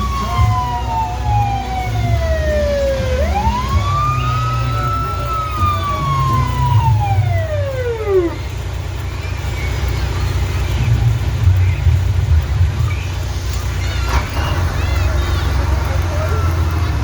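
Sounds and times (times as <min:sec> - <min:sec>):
fire engine siren wailing: 0:00.0 - 0:10.6, 0:13.2 - 0:17.0
truck engine rumbling: 0:00.0 - 0:17.0.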